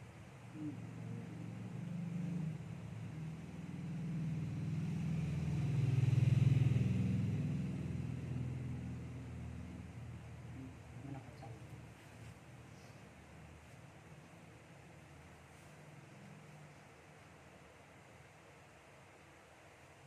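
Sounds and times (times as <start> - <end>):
motor vehicle passing by: 0.6 - 12.9.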